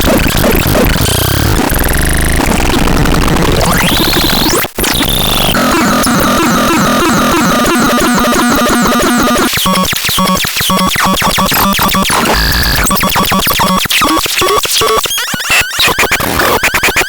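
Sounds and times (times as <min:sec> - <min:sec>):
glitchy electronic synthesizer: 0:00.0 - 0:17.0.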